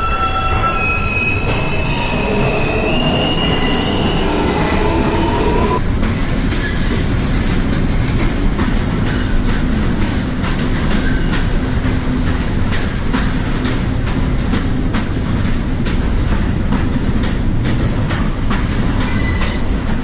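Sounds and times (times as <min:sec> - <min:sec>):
high whining squealing tones: 0:00.0 - 0:05.8
subway train rumble: 0:00.0 - 0:20.0.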